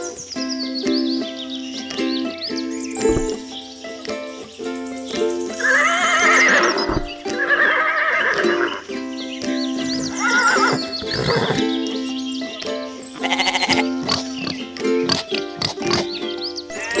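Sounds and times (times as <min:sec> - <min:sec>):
background music: 0:00.0 - 0:17.0
horse whinnying: 0:05.6 - 0:08.8, 0:10.1 - 0:11.6.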